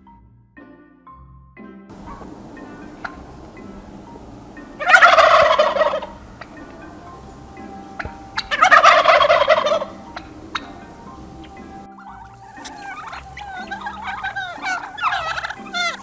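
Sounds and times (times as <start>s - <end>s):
turkey gobbling: 1.9s - 16.0s.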